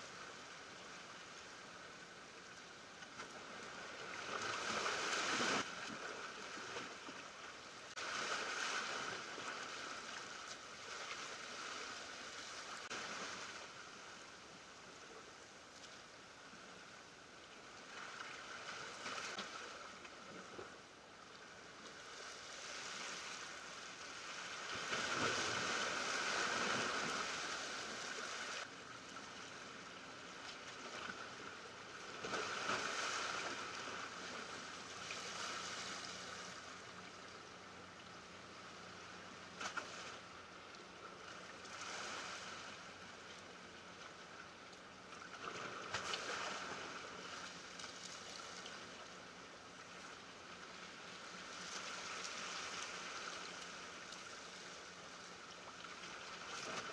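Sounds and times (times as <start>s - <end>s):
small waves washing against rocks: 4.2s - 7.0s, 7.9s - 10.0s, 24.2s - 28.7s.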